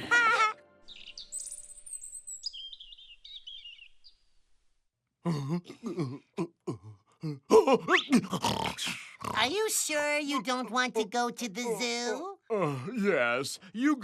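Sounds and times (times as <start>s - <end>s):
music: 0.0s - 1.8s
birds chirping and twittering: 0.8s - 4.6s
person speaking: 7.5s - 14.0s.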